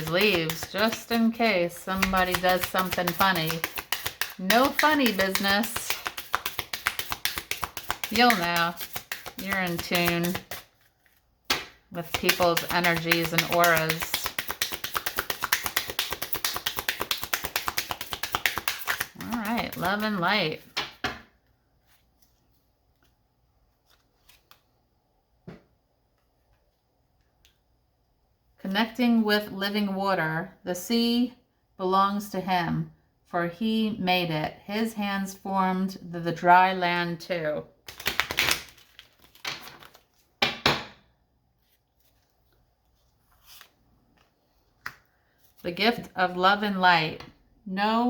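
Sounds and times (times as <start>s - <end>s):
cards clicking and tapping: 0.0s - 1.2s, 1.8s - 10.6s, 11.5s - 21.2s.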